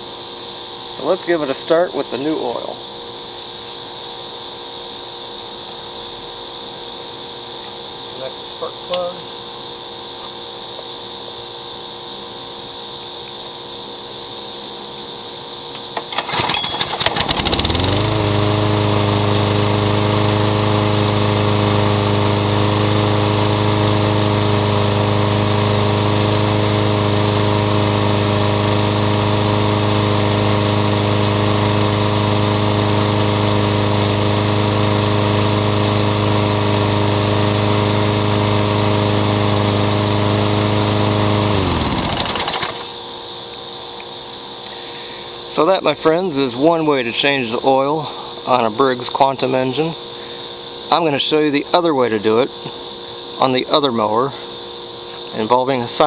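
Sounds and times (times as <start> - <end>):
lawn mower pull-start: 8.9 - 9.2, 15.7 - 43.2
lawn mower engine running: 15.8 - 43.1.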